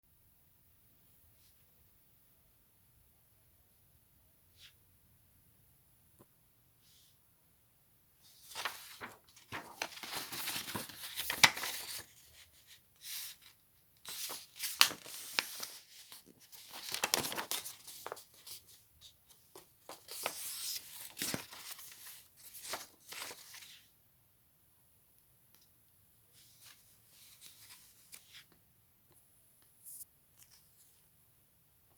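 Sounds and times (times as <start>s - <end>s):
paper crinkling and tearing: 8.4s - 13.5s, 14.1s - 18.7s, 19.8s - 23.6s.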